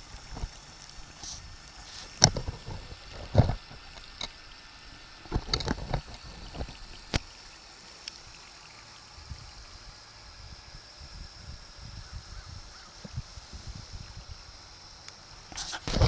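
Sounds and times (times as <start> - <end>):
water splashing and sloshing: 0.0 - 8.8
faint high-pitched hum: 0.0 - 16.0.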